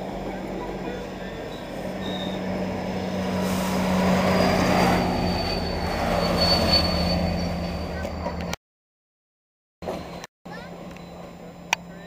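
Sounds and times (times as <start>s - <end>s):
diesel locomotive engine drone: 0.0s - 8.6s, 9.8s - 12.0s
high wheel squeal: 1.0s - 8.6s, 9.8s - 10.3s.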